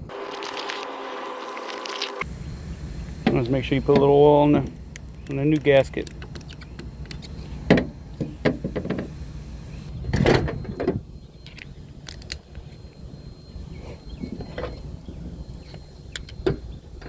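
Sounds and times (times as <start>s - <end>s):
tools and parts clicking: 3.9s - 9.1s, 10.6s - 13.0s, 15.6s - 17.0s.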